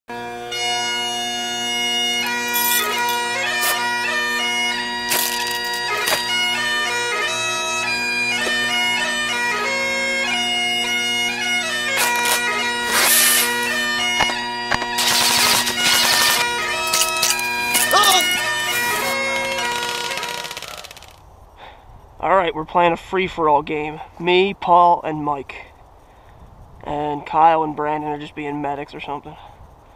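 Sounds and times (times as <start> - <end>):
bagpipe music: 0.1 - 21.2
short bursts of noise: 17.3 - 21.2.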